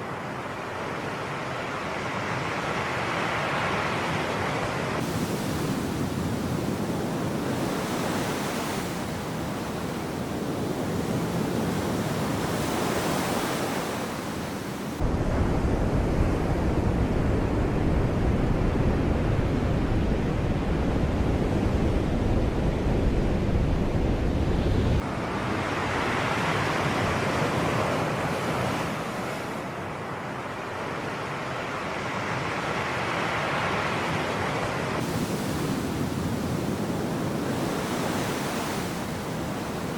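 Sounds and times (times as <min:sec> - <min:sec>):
wind rumble on microphone: 0:04.5 - 0:29.7, 0:34.3 - 0:39.9
sea waves washing onto shore: 0:04.6 - 0:15.0, 0:32.9 - 0:39.9.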